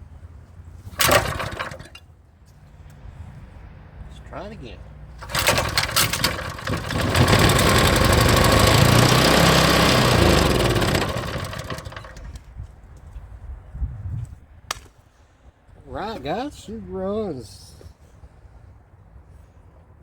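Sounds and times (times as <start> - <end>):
small engine pull-started and running: 0.9 - 2.1, 5.2 - 12.5.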